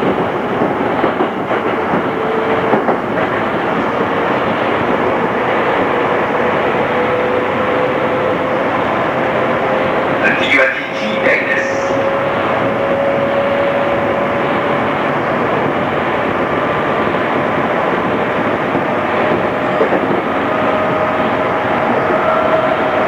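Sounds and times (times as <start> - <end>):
train wheels rumbling on rail: 0.0 - 23.0
train motor and gear whine: 1.1 - 23.0.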